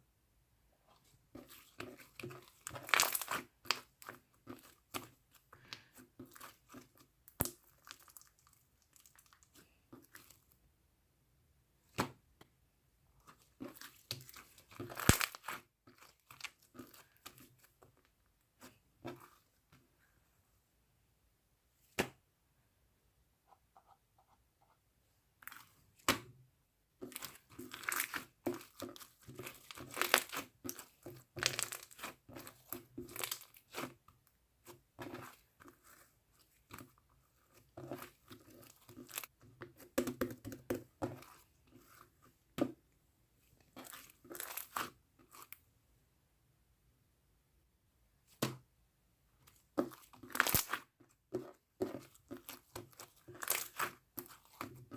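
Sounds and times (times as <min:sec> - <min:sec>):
slime crackling and snapping: 0:02.7 - 0:03.8, 0:13.8 - 0:16.6, 0:33.1 - 0:33.8, 0:50.0 - 0:50.8, 0:52.5 - 0:54.6.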